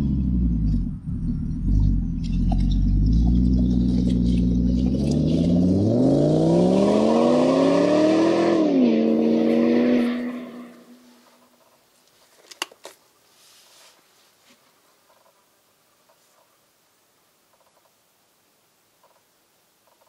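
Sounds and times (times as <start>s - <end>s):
car engine revving: 0.0s - 11.1s.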